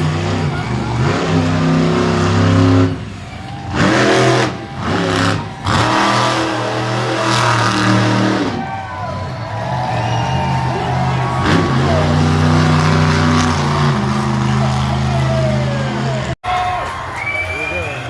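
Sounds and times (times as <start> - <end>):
monster truck engine revving: 0.0 - 16.4.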